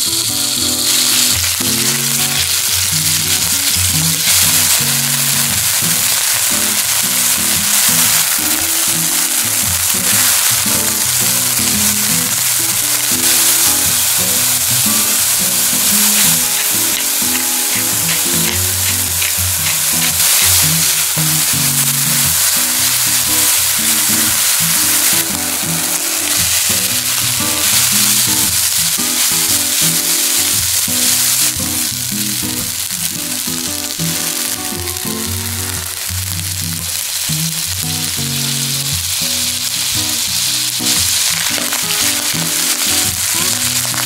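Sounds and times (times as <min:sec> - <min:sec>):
background music: 0:00.0 - 0:44.0
food sizzling in frying pan: 0:00.0 - 0:44.0
spatula stirring: 0:09.6 - 0:31.6.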